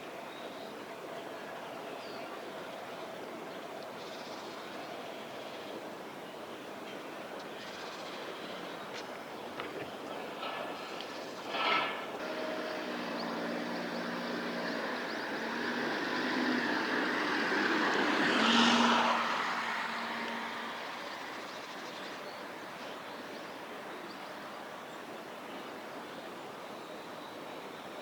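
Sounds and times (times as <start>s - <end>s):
passing vehicle: 11.8s - 22.7s.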